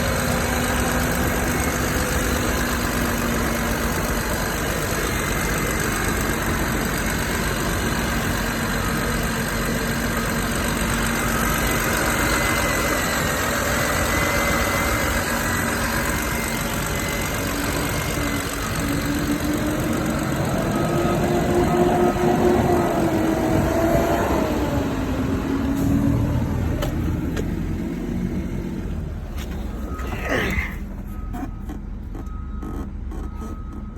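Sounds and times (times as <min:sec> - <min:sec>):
car engine idling: 0:00.0 - 0:33.9
rising higher engine note: 0:11.6 - 0:28.7.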